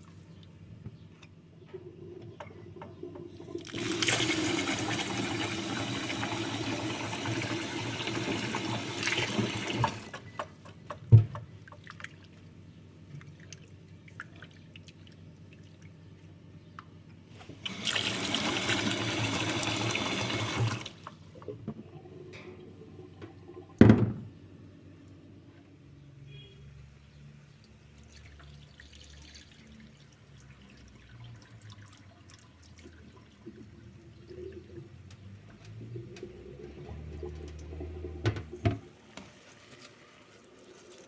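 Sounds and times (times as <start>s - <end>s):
water running: 2.3s - 10.4s, 17.4s - 23.8s, 28.0s - 41.0s.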